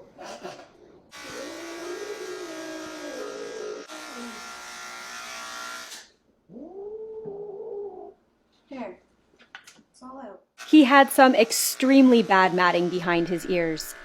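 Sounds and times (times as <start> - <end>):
electric pet clippers buzzing: 1.1 - 6.2, 10.6 - 14.0.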